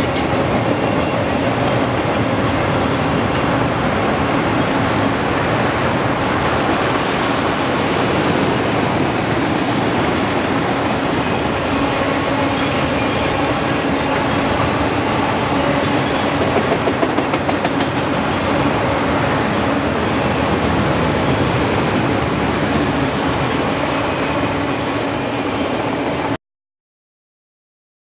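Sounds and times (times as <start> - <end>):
high wheel squeal: 0.0 - 2.0, 11.1 - 16.7, 19.5 - 20.8, 22.3 - 26.4
freight train wheels rumbling: 0.0 - 26.3.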